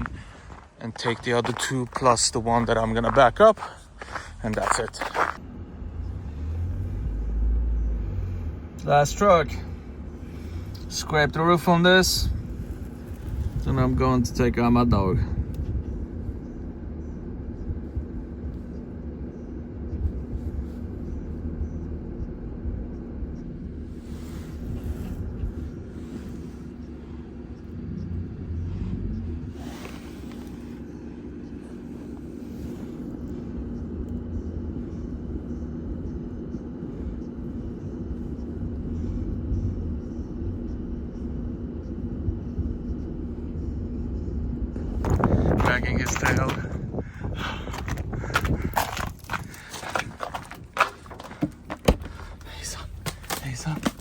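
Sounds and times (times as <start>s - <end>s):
heavy truck engine running: 0.0s - 54.0s
vehicle low rumble: 0.0s - 54.0s.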